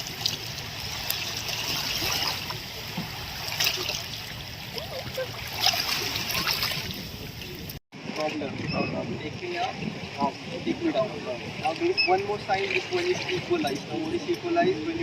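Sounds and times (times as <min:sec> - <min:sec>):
sharp water splashes: 0:00.0 - 0:08.5
seawater lapping at shore: 0:00.0 - 0:15.0.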